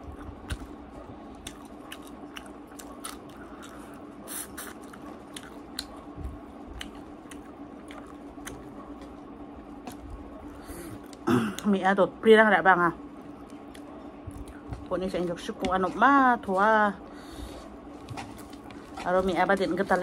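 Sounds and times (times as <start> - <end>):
person chewing with mouth clicks: 0.0 - 9.2.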